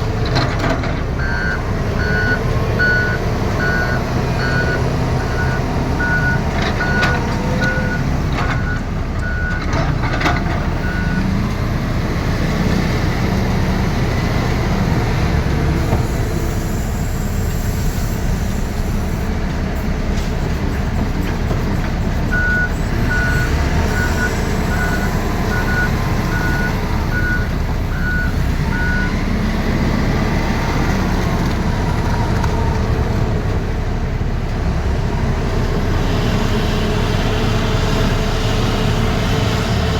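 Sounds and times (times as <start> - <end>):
diesel engine running under load: 0.0 - 39.9
reversing alarm beeping: 1.2 - 11.3, 22.3 - 29.2.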